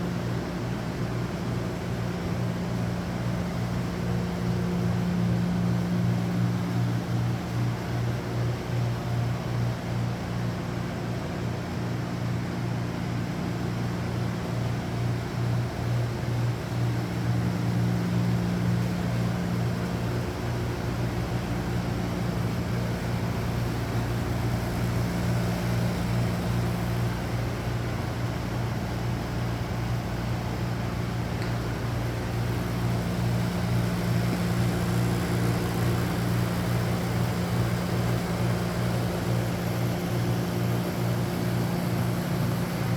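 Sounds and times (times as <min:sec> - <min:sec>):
machinery humming: 0:18.8 - 0:42.9.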